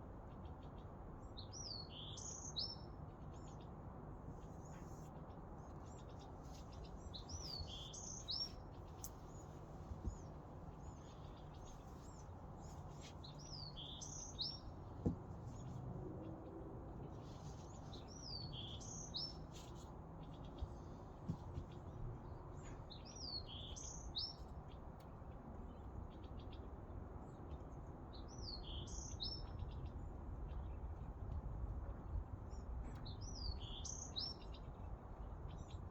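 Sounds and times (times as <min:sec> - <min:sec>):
small bird singing: 0:01.3 - 0:03.7, 0:05.8 - 0:14.8, 0:17.5 - 0:21.0, 0:22.5 - 0:24.4, 0:28.2 - 0:30.8, 0:32.5 - 0:34.8.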